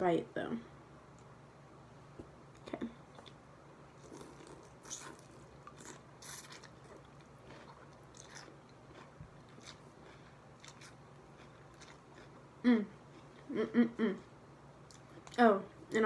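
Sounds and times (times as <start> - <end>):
mouth chewing sounds: 4.0 - 12.4.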